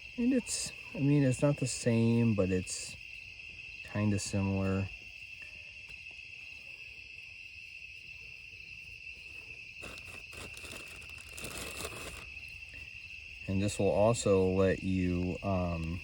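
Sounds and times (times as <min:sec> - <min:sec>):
insects chirring: 0:00.0 - 0:16.0
rustling and crinkling handling noise: 0:09.2 - 0:12.4.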